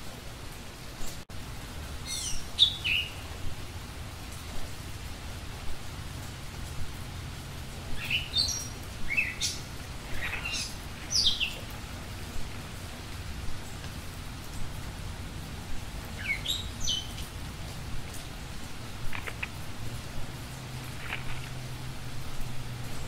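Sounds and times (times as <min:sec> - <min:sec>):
low background noise: 0:00.0 - 0:23.0
small bird chirping: 0:02.0 - 0:03.3, 0:08.0 - 0:13.0, 0:16.2 - 0:17.3, 0:19.1 - 0:19.6, 0:20.8 - 0:21.6.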